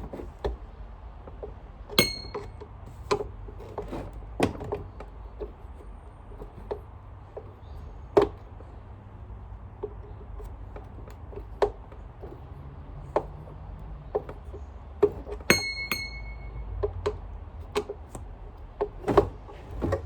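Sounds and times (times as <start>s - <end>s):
vacuum cleaner parts clicking: 1.3s - 8.6s
short metallic clinks: 2.0s - 2.7s, 15.5s - 16.8s.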